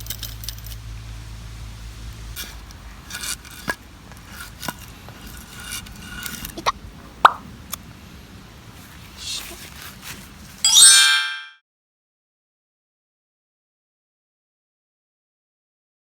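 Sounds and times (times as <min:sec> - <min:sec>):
firewood rustling and scraping: 0:02.2 - 0:06.8, 0:08.6 - 0:10.7.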